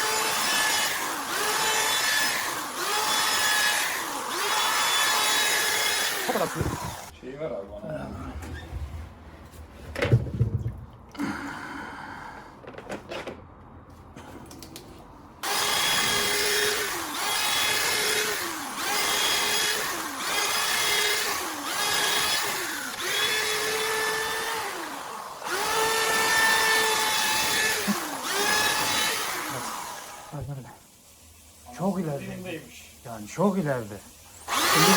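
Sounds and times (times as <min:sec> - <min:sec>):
drain-cleaning machine spinning cable: 0:15.5 - 0:30.5, 0:34.3 - 0:34.9.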